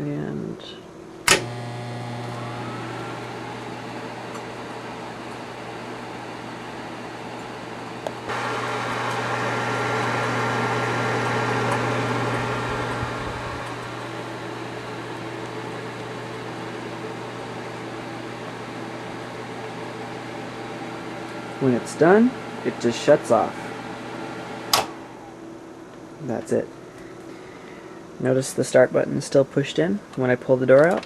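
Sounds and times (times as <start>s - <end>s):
microwave oven humming: 0.0s - 28.4s
microwave click: 1.3s - 5.7s, 7.3s - 16.2s, 24.5s - 25.1s.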